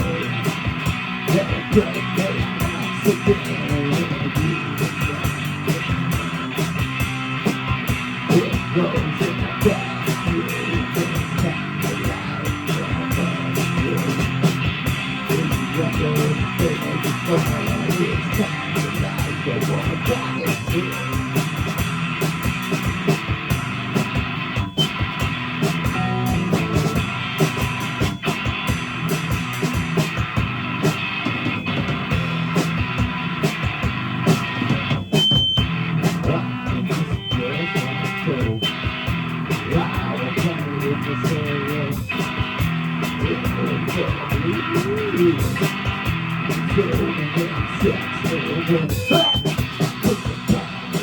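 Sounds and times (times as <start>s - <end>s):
bass guitar: 0.0s - 51.0s
drum kit steady beat: 0.0s - 51.0s
electric guitar: 0.0s - 51.0s.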